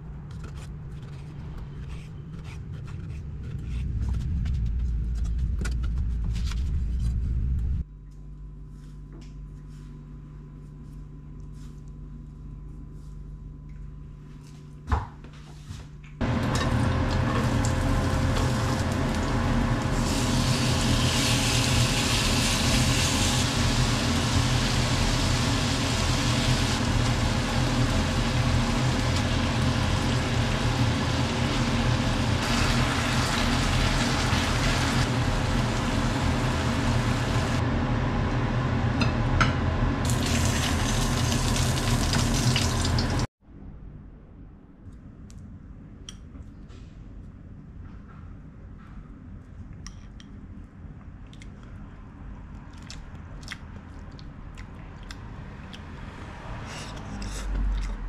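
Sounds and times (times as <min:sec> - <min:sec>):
low fan-like hum: 0:00.0 - 0:58.0
meat sizzling in a frying pan: 0:17.2 - 0:37.6, 0:40.1 - 0:43.2.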